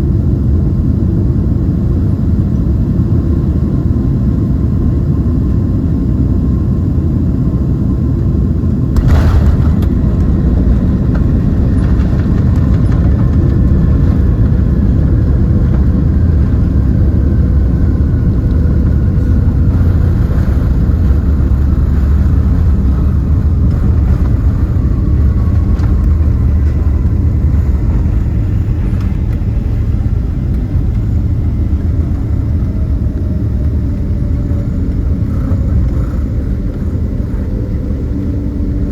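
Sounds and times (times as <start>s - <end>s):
aircraft cabin rumble: 0.0s - 38.9s
jet engine whine: 0.0s - 38.9s
sharp thump: 9.0s - 12.3s.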